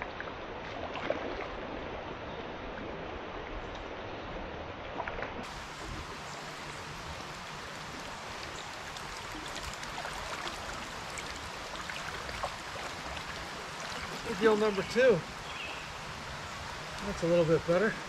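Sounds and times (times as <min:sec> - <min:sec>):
creek water flowing: 0:00.0 - 0:18.0.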